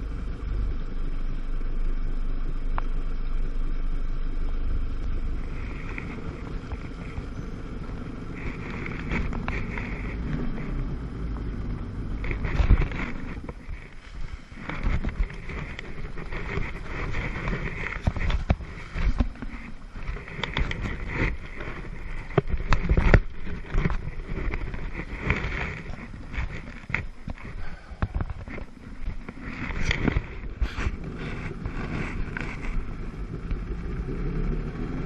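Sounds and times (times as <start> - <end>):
wind buffeting microphone: 5.2 - 35.0.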